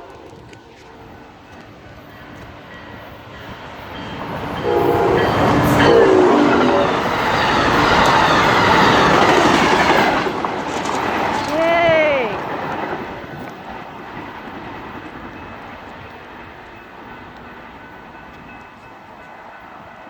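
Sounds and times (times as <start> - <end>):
quiet train horn blasts: 0.0 - 9.2
train passing at speed: 0.0 - 20.0.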